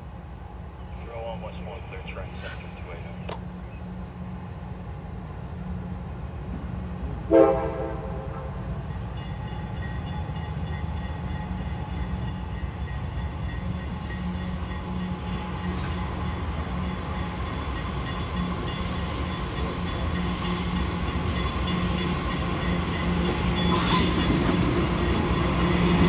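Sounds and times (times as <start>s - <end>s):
diesel locomotive rumbling: 0.0s - 26.0s
train horn blast: 7.2s - 8.6s.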